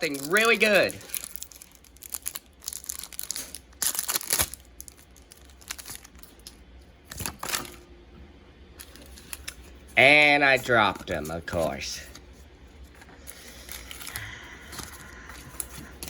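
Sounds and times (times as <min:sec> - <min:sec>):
foil wrapper crinkling and tearing: 0:00.0 - 0:06.5, 0:13.2 - 0:16.0.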